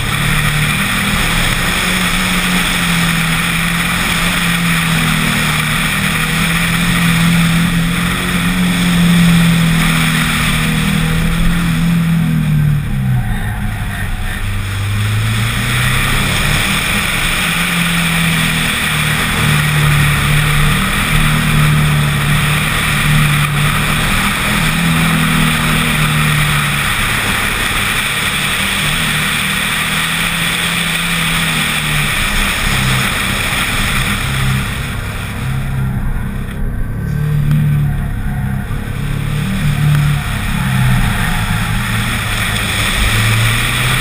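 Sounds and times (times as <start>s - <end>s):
car engine revving: 0.0s - 44.0s
wind and road noise: 0.0s - 44.0s.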